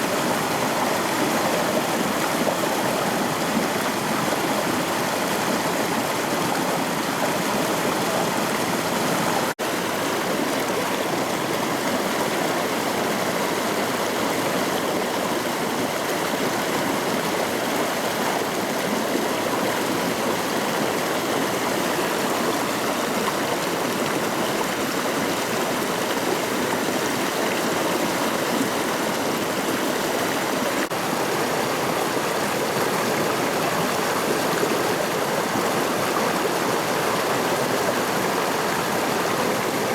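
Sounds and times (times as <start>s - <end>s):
rushing river water: 0.0s - 39.9s.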